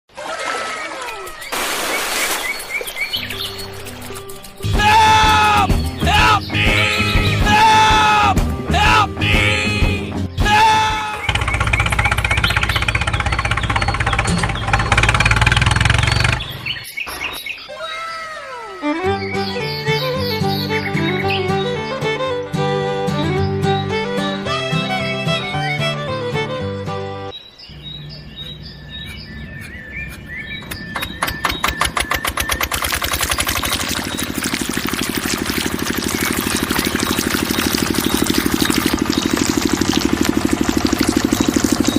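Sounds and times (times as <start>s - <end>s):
bird chirps: 1.0s - 7.5s, 11.1s - 21.8s, 27.3s - 34.9s, 36.0s - 40.1s
small engine chugging: 11.2s - 16.8s, 30.1s - 41.9s.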